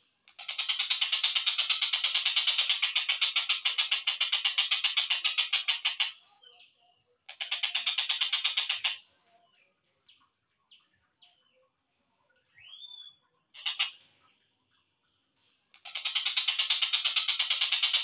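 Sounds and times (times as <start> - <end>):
rapid repeated bird notes: 0.2 - 6.6, 7.2 - 9.1, 12.7 - 14.5, 15.1 - 18.0.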